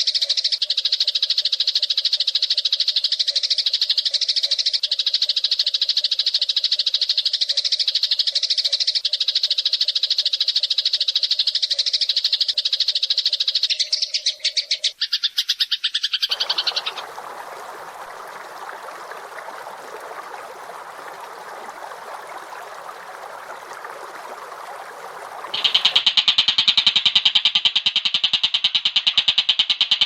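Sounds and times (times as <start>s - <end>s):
harsh bird chattering: 25.5s - 26.0s.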